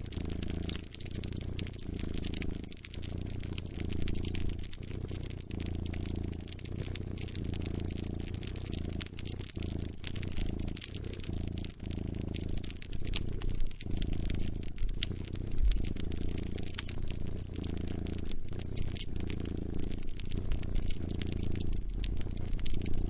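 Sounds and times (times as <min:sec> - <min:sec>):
cat purring: 0:00.0 - 0:23.0
wood fire crackling: 0:00.0 - 0:23.0.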